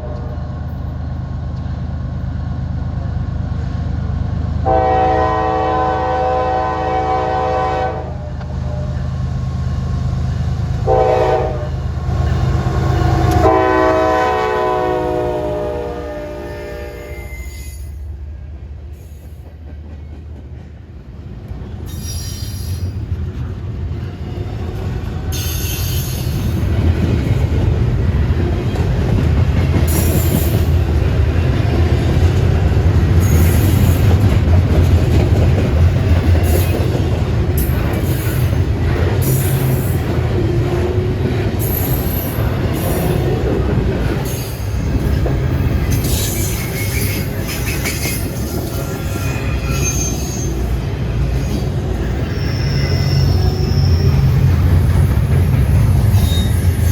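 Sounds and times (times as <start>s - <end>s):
train wheels rumbling on rail: 0.0s - 56.9s
high wheel squeal: 16.3s - 18.0s, 21.9s - 23.0s, 25.3s - 26.5s, 44.2s - 54.7s, 55.9s - 56.9s.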